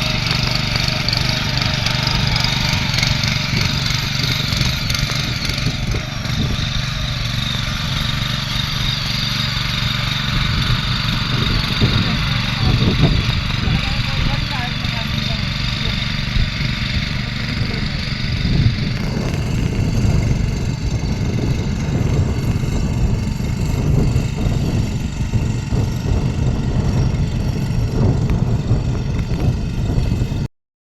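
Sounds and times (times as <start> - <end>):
tractor engine running under load: 0.0 - 30.5.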